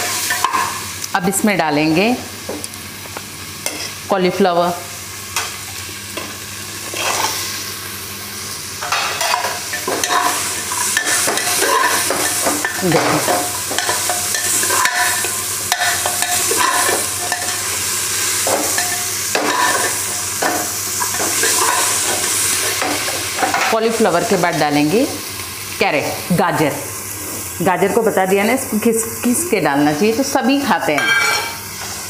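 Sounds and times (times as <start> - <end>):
vegetables sizzling in hot oil: 0.0 - 32.0
ladle scraping and clinking pan: 8.8 - 17.6, 21.0 - 22.2, 31.0 - 31.8.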